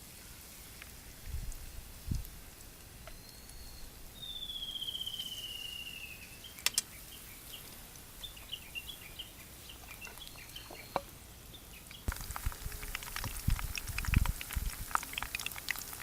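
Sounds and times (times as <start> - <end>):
short high bird chirps: 3.1 - 6.7
sharp clicks: 6.6 - 6.9.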